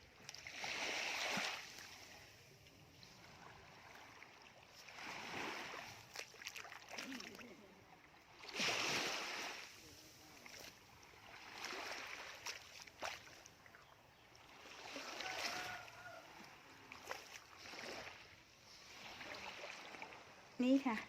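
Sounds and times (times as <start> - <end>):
shallow waves washing on sand: 0.0 - 13.7, 14.3 - 21.0
short sharp water splashes: 3.0 - 7.5, 8.3 - 9.8, 10.4 - 13.8, 14.4 - 20.3.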